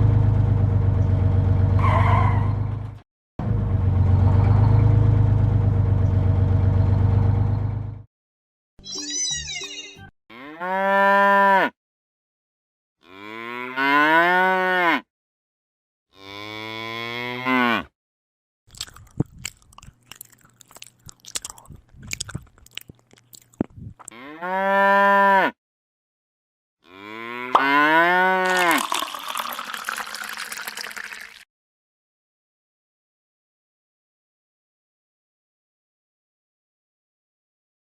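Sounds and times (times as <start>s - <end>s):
cow mooing: 10.3s - 11.8s, 13.0s - 15.1s, 16.2s - 17.9s, 24.1s - 25.6s, 26.8s - 28.8s.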